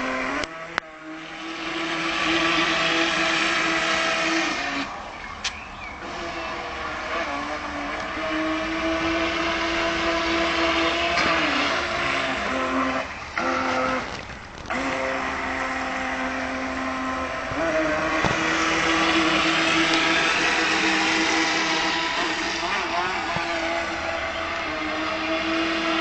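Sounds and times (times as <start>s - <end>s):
model boat motor whine: 0.0s - 26.0s.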